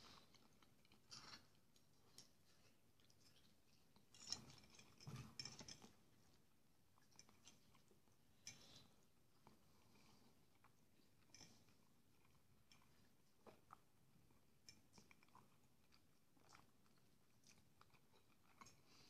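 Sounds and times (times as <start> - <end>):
man chewing: 8.6 - 19.0.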